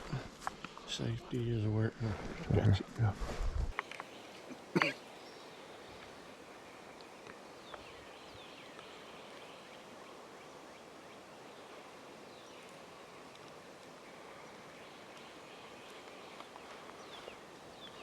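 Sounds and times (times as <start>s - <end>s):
soft steady hiss: 0.0s - 18.0s
distant bird chirps: 3.7s - 18.0s.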